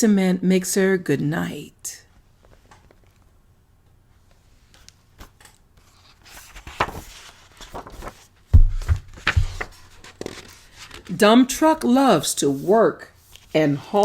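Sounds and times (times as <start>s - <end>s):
book page turning rustles: 4.6s - 11.2s, 12.6s - 14.0s
loud dull thumps: 8.6s - 9.6s.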